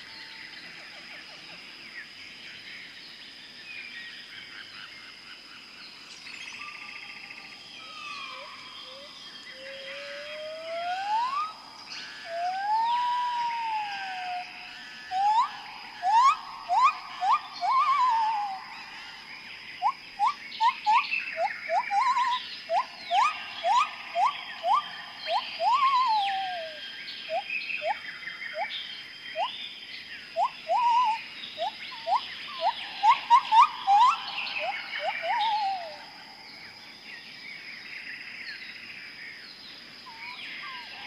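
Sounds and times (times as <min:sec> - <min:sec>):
background animal chorus: 0:00.0 - 0:41.0
whistled animal calls rising: 0:07.9 - 0:19.0, 0:19.8 - 0:28.0, 0:30.4 - 0:36.0.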